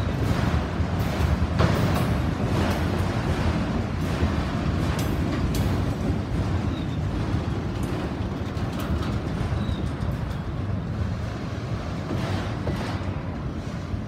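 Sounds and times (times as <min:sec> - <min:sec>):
clicks and clanks: 0:00.0 - 0:10.6
steel wheels rumbling on rail: 0:00.0 - 0:14.0.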